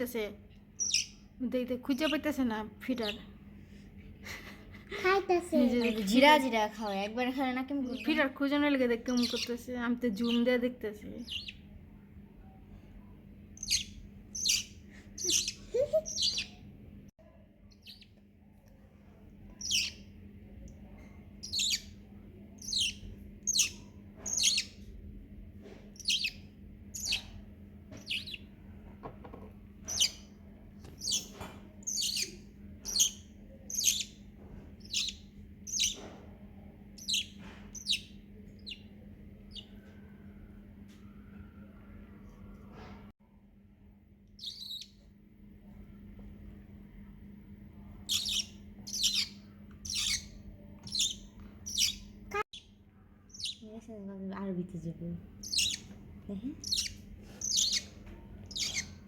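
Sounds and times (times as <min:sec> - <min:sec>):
steady low hum: 0:00.0 - 0:59.0
parrot chick chirping: 0:00.7 - 0:01.3, 0:01.9 - 0:03.2, 0:05.6 - 0:07.1, 0:07.7 - 0:08.3, 0:09.0 - 0:11.7, 0:13.6 - 0:16.7, 0:17.7 - 0:18.2, 0:19.5 - 0:20.2, 0:21.4 - 0:22.0, 0:22.6 - 0:24.9, 0:25.9 - 0:28.6, 0:29.8 - 0:36.1, 0:37.0 - 0:39.8, 0:44.4 - 0:45.0, 0:48.0 - 0:52.7, 0:53.3 - 0:53.6, 0:55.3 - 0:59.0.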